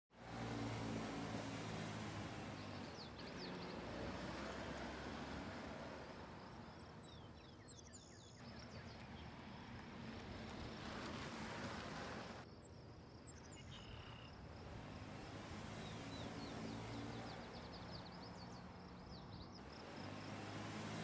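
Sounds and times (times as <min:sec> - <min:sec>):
tyre and road noise: 0:00.1 - 0:12.5, 0:13.7 - 0:21.0
birds chirping: 0:02.3 - 0:04.9, 0:06.4 - 0:09.6, 0:12.6 - 0:21.0
car engine hum: 0:13.9 - 0:21.0.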